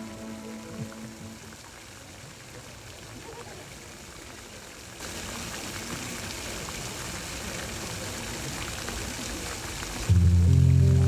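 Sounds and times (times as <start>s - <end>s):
music with deep bass: 10.1s - 11.0s.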